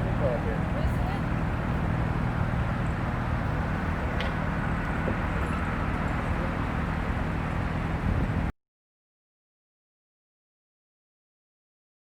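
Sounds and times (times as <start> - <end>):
engine humming: 0.0 - 8.5.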